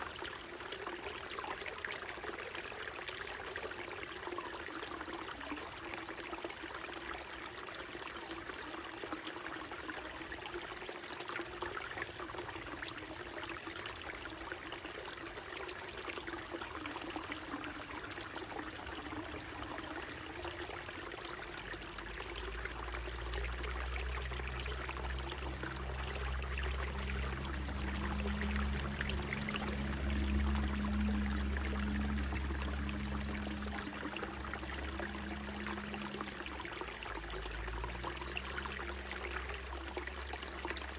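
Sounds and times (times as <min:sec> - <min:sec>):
stream trickling and babbling: 0:00.0 - 0:40.9
low droning hum: 0:24.6 - 0:39.2.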